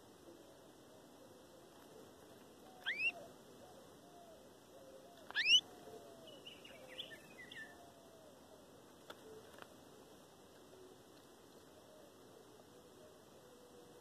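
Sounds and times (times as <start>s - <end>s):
rising whistled bird calls: 2.8s - 3.2s, 5.3s - 5.7s
soft bird chirps: 2.8s - 3.2s, 5.2s - 7.8s.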